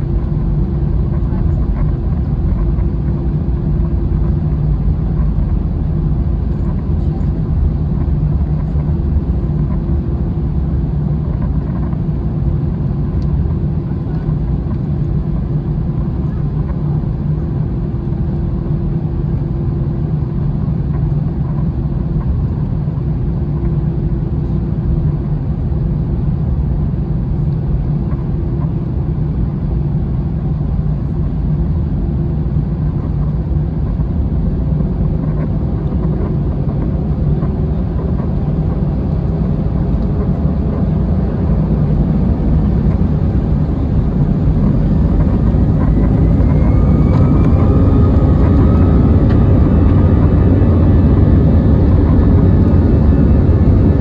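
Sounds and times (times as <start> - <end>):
airplane cabin engine rumble: 0.0 - 54.0.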